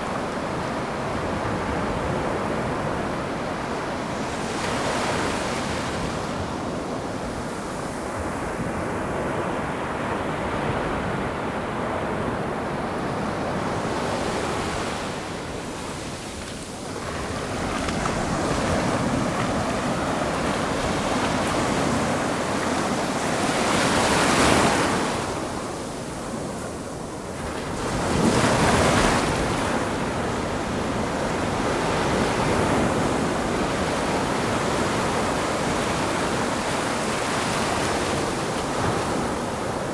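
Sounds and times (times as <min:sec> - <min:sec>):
ocean waves washing: 0:13.1 - 0:39.9
waves crashing: 0:13.8 - 0:39.9.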